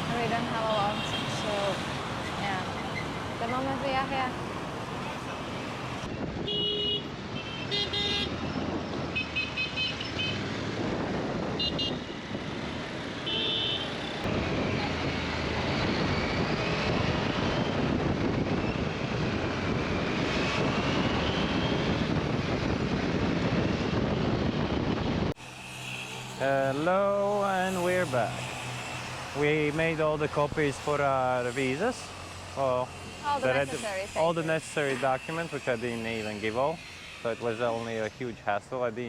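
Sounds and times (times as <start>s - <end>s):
traffic engines and road noise: 0.0s - 39.0s
car horn beeps: 6.4s - 8.3s, 11.6s - 12.0s, 13.2s - 14.0s.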